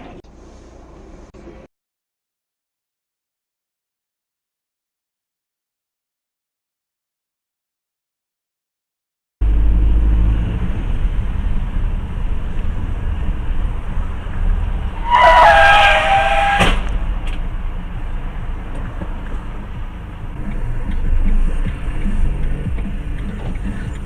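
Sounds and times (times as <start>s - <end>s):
car road and engine rumble: 0.0s - 1.7s, 9.4s - 24.0s
shrill falling squeal: 15.0s - 16.8s.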